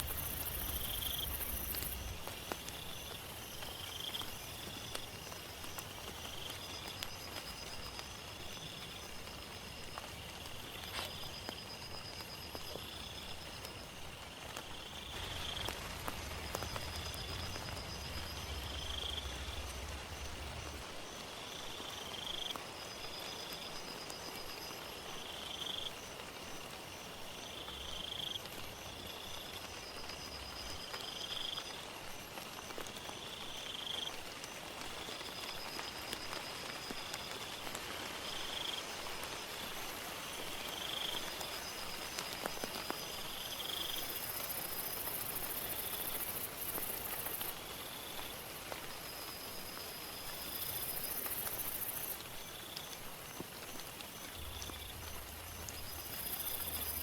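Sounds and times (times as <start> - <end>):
steady rain: 0.0 - 57.0
low rumble: 15.1 - 21.2.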